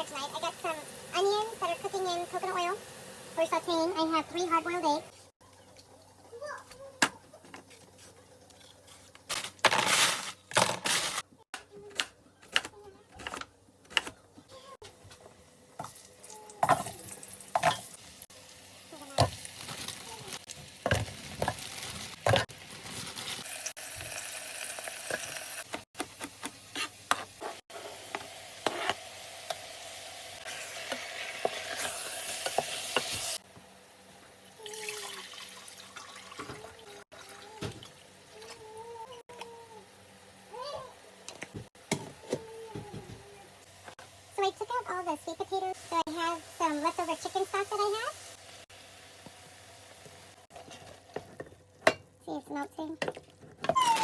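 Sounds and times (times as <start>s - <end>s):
onions sauteing: 0.0s - 6.4s, 15.8s - 41.2s, 43.4s - 52.0s.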